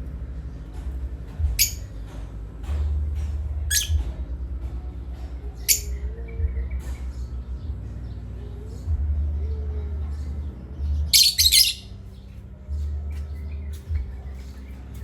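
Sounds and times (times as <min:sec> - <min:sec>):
steady low rumble: 0:00.0 - 0:15.0
parrot squawks: 0:11.2 - 0:11.8.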